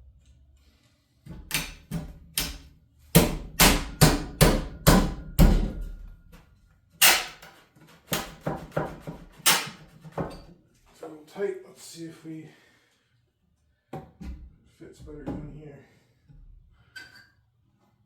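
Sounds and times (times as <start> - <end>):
hammer striking wood: 1.5 - 5.8, 7.0 - 7.5, 8.1 - 10.3.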